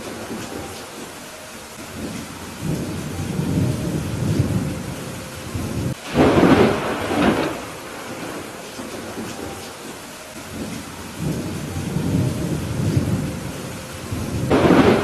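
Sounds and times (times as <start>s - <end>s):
steady rain: 0.0s - 15.0s
thunder rumble: 0.0s - 15.0s
loud thunderclap: 5.5s - 9.6s, 10.5s - 15.0s.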